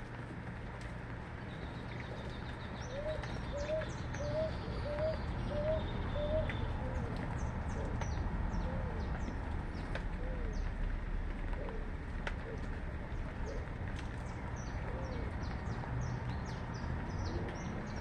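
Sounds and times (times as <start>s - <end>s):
small birds chirping: 1.4s - 10.8s, 13.1s - 18.0s
dove cooing: 2.1s - 10.8s, 11.4s - 13.8s, 14.7s - 15.6s, 17.2s - 18.0s.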